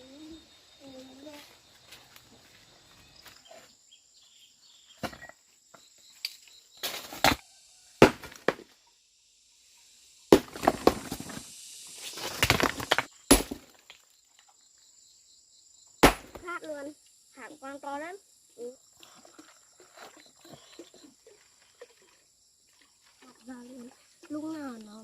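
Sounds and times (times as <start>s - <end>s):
sharp knocks and cracks: 16.0s - 16.5s.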